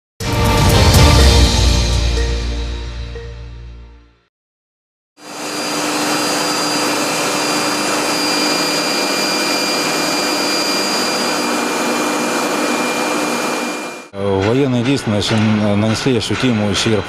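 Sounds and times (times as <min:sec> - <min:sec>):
industrial machinery roar: 0:05.2 - 0:17.0.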